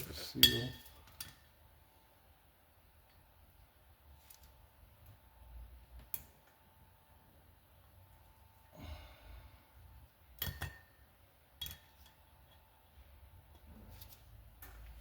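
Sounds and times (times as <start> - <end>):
soft breath: 8.7 - 9.8.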